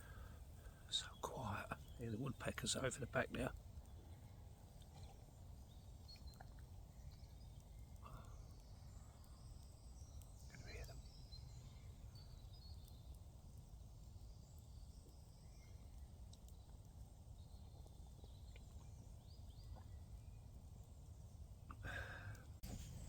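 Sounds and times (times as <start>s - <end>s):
distant woodpecker calls: 0.0s - 13.3s
low background hush: 0.0s - 23.0s.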